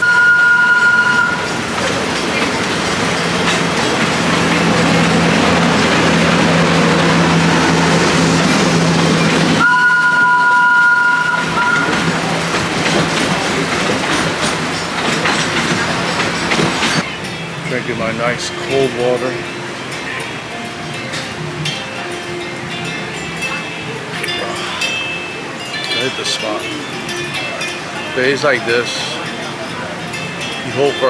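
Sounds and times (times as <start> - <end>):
vehicle two-tone horn: 0.0 - 1.7, 9.6 - 12.5
engine hum and rolling noise: 0.0 - 31.0.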